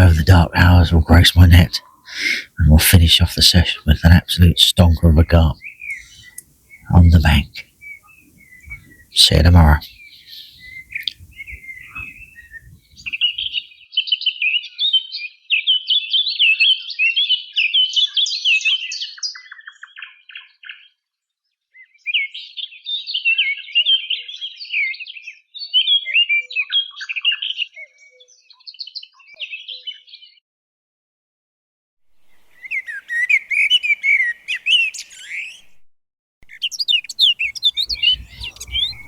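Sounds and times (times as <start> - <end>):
songbirds warbling: 0.0 - 13.6, 32.4 - 35.7, 36.4 - 39.0.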